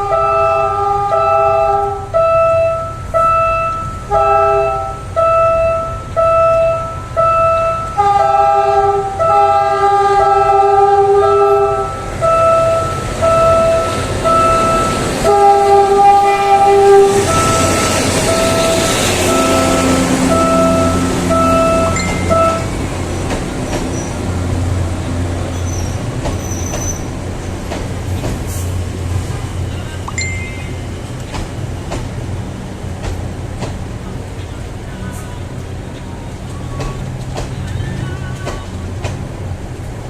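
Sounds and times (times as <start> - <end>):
train horn blasts: 0.0 - 22.7
level crossing warning bell: 2.2 - 8.4, 11.2 - 15.4, 16.6 - 22.9, 30.1 - 31.2
train wheels on rails: 8.8 - 40.0.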